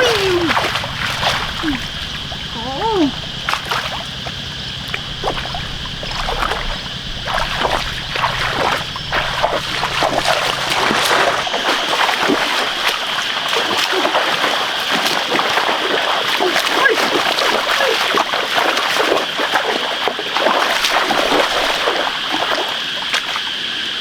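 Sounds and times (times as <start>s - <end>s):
high-pitched drone: 0.0s - 11.9s
splashing in shallow muddy water: 0.0s - 24.0s.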